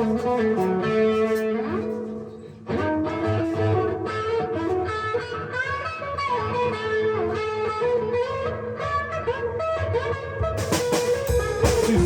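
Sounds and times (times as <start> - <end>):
guitar playing single notes: 10.6 - 12.0.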